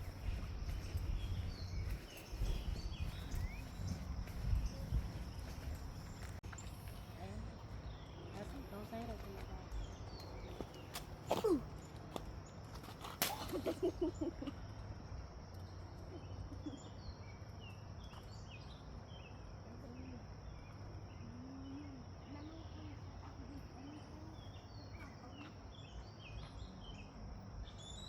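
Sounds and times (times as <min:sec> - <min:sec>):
faint low rumble: 0:00.0 - 0:10.6
small birds chirping: 0:00.0 - 0:14.8, 0:15.4 - 0:28.0.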